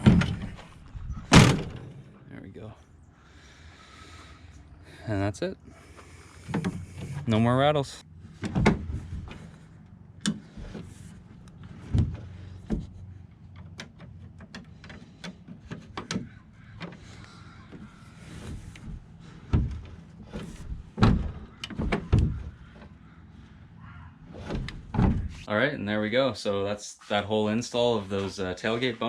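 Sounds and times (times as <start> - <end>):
knocks and clunks of tailgate: 0.0 - 2.1, 8.3 - 9.5, 11.7 - 13.0, 17.7 - 22.6, 24.4 - 25.4.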